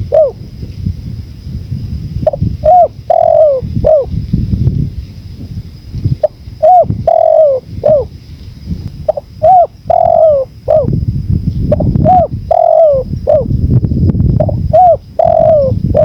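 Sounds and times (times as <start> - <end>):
dove cooing: 0.0 - 0.5, 2.2 - 4.2, 6.1 - 8.2, 9.1 - 11.0, 11.7 - 13.5, 14.4 - 16.0
low rush of wind: 0.0 - 16.0.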